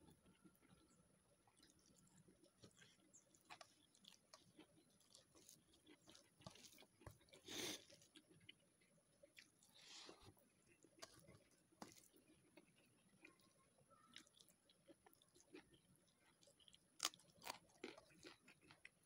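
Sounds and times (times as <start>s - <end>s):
person chewing: 0.0s - 19.0s
fingers squishing rice on plate: 0.1s - 8.6s.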